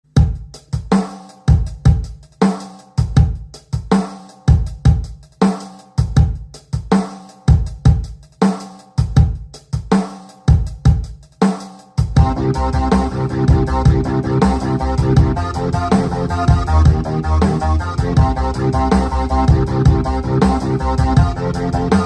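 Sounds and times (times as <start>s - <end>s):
electronic drum loop: 0.0s - 22.0s
pitched synth tone: 12.2s - 22.0s.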